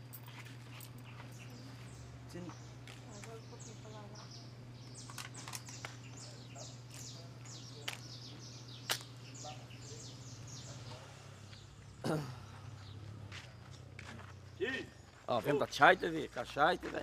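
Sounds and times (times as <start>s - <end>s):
birds chirping: 0.0s - 17.0s
steady low hum: 0.0s - 17.0s.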